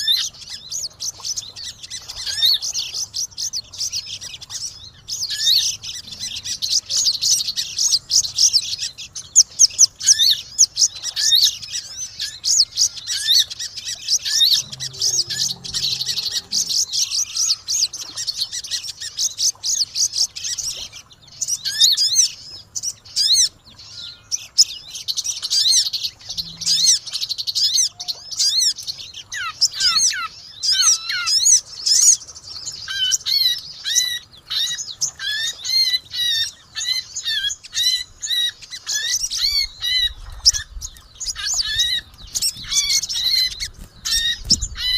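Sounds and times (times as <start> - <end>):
songbirds chirping: 13.9 - 17.2.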